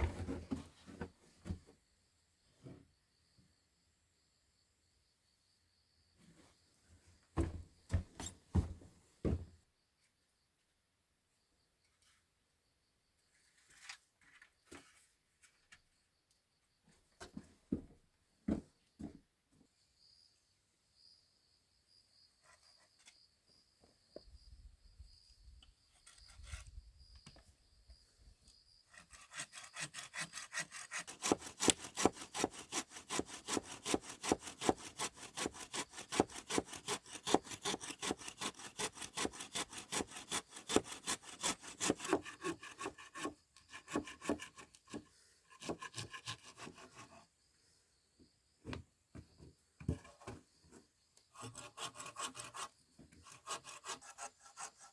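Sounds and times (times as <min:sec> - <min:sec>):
saw cutting wood: 0:28.9 - 0:47.2, 0:51.3 - 0:54.9.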